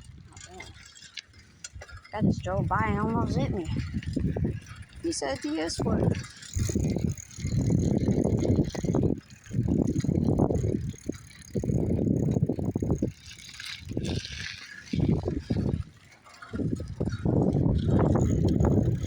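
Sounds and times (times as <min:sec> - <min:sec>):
bicycle rattling: 0:00.0 - 0:19.0.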